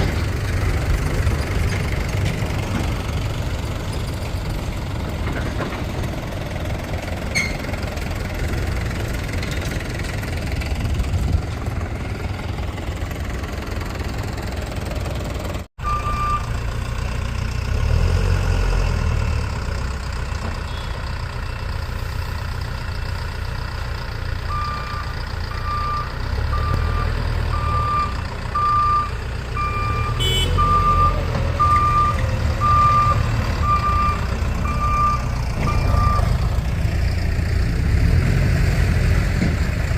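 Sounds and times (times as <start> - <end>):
diesel engine rumbling: 0.0 - 39.9
reversing alarm beeping: 15.8 - 16.5, 24.5 - 36.4.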